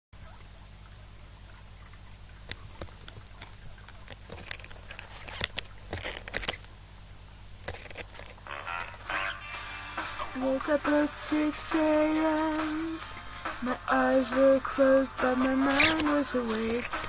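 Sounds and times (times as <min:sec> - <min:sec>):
low electrical hum: 0:00.2 - 0:17.0
light clicks taps and scratches: 0:02.5 - 0:06.7, 0:07.6 - 0:08.4, 0:15.3 - 0:17.0.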